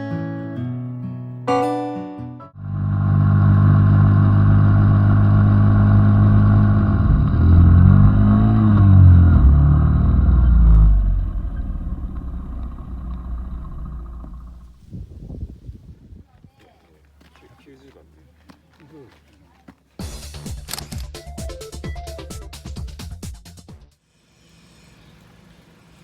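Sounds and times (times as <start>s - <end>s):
vehicle engine running: 2.6s - 14.8s.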